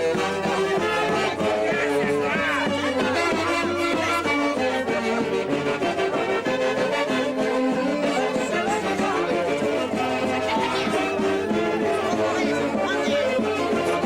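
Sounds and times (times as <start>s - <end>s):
wind band playing melody: 0.0s - 14.0s.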